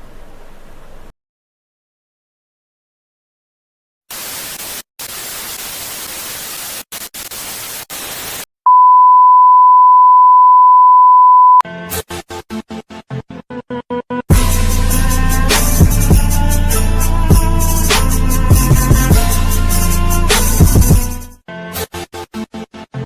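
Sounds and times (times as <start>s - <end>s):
tv static hiss: 4.1s - 8.5s
test-tone beep: 8.7s - 11.6s
music: 11.7s - 23.0s.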